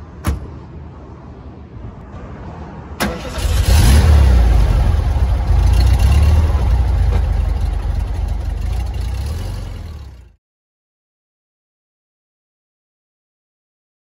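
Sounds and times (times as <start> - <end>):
car engine starting and rumbling: 2.9 - 10.4.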